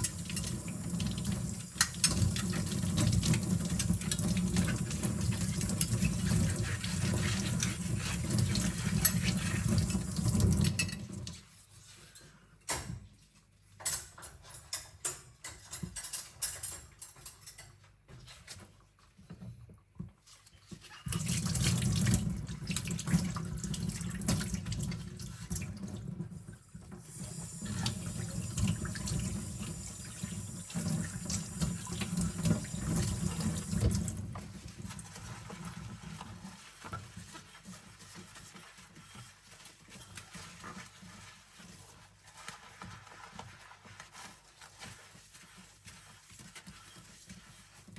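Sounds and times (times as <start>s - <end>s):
kitchen tap running: 0.0s - 11.4s, 21.1s - 39.4s
cutlery and dishes clinking: 13.8s - 17.9s.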